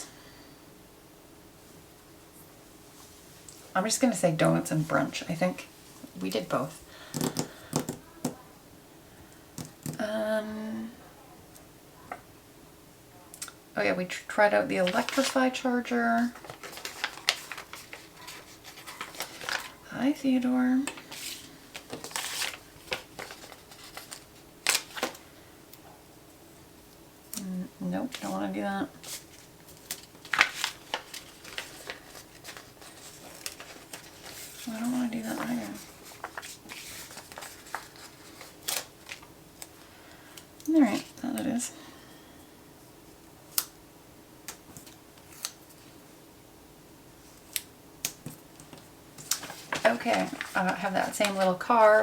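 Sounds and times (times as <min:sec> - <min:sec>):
faint room hum: 0:00.0 - 0:52.0
paper clicks and taps: 0:07.1 - 0:08.4
paper rustling and clicking: 0:14.8 - 0:15.5, 0:16.2 - 0:19.8, 0:20.8 - 0:25.2, 0:29.0 - 0:41.5, 0:44.5 - 0:45.8, 0:47.4 - 0:52.0.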